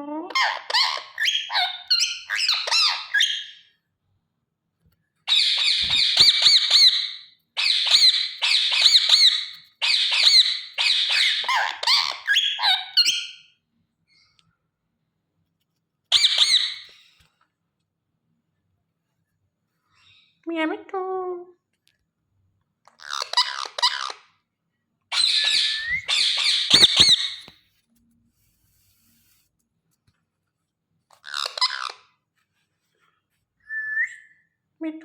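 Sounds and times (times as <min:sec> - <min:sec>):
parrot chattering and screeching: 0:00.3 - 0:03.7, 0:05.3 - 0:13.4, 0:16.1 - 0:17.0, 0:22.9 - 0:24.3, 0:25.1 - 0:27.5, 0:31.1 - 0:32.1.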